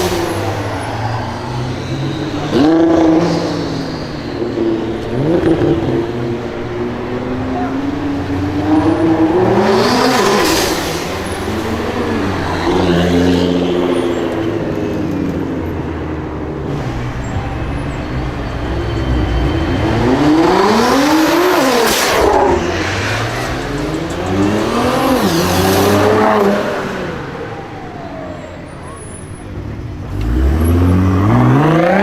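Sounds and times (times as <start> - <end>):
car engine revving hard: 0.0 - 14.0, 16.7 - 27.4.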